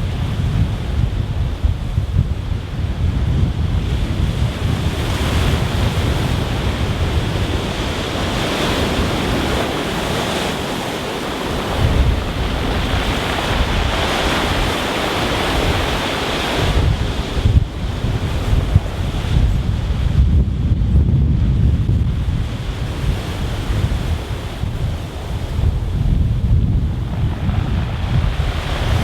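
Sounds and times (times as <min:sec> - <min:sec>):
sea surf on stony beach: 0:00.0 - 0:29.0
wind buffeting microphone: 0:00.0 - 0:29.0.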